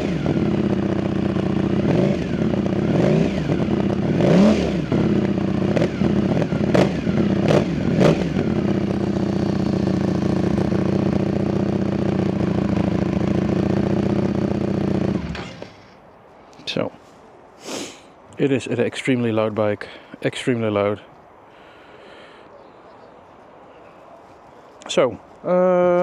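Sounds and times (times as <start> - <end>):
motorcycle engine revving and idling: 0.0 - 16.0.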